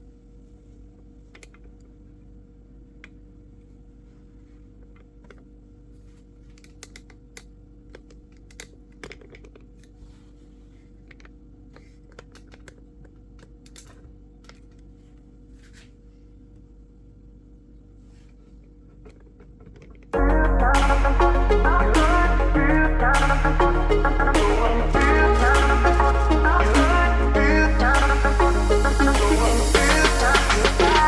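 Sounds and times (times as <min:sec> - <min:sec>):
steady low hum: 0:20.2 - 0:31.0.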